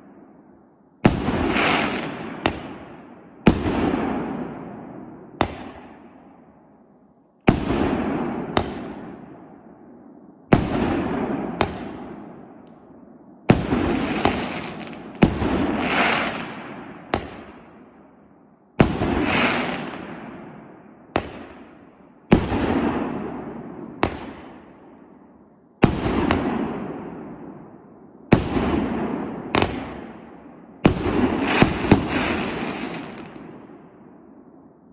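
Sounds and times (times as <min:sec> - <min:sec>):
firework crackle and rumble: 0:01.0 - 0:06.0, 0:13.5 - 0:17.7, 0:18.8 - 0:24.7, 0:30.8 - 0:33.6
firework shots banging: 0:05.4 - 0:05.9, 0:21.1 - 0:21.7, 0:22.3 - 0:24.7, 0:30.8 - 0:33.5.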